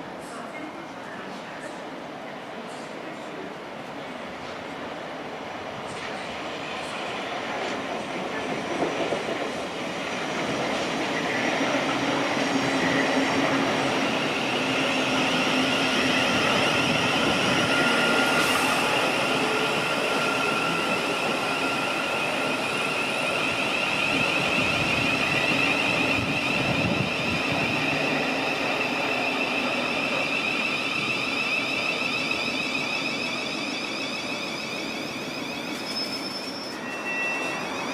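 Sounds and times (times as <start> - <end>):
electric train running with whine: 11.2 - 37.9.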